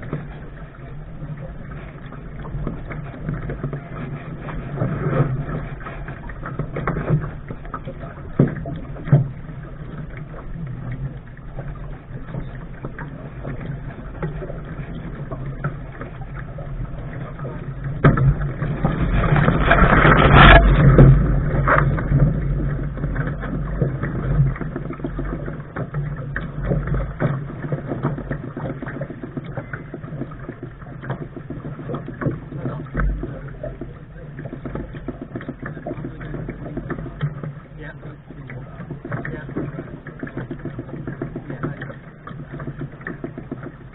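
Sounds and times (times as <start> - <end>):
wind buffeting microphone: 0.0 - 30.6
water rushing along hull: 0.0 - 43.9.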